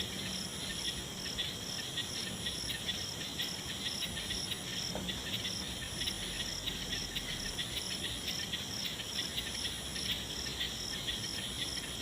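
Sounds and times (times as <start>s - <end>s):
crickets chirping: 0.0s - 12.0s
insect high trill: 0.0s - 12.0s.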